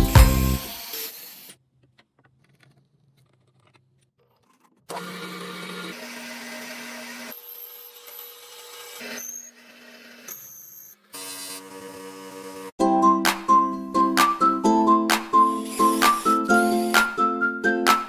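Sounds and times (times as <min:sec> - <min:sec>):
power tool humming: 0:00.0 - 0:01.6, 0:04.9 - 0:10.5, 0:11.1 - 0:12.8, 0:15.4 - 0:17.2.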